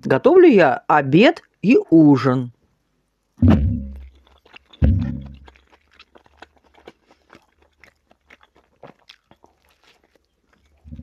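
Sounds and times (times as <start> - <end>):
close chewing with wet mouth clicks: 3.9 - 11.0.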